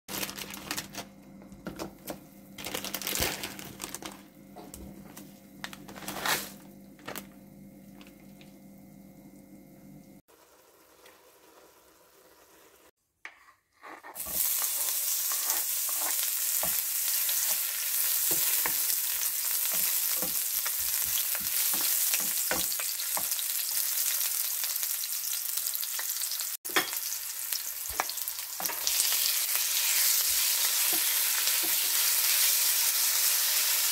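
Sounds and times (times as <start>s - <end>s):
faint steady hum: 0.2s - 10.2s
water boiling: 7.7s - 12.9s
onions sizzling in oil: 10.3s - 12.9s, 14.2s - 33.9s
wooden spatula scraping and tapping: 13.2s - 16.8s.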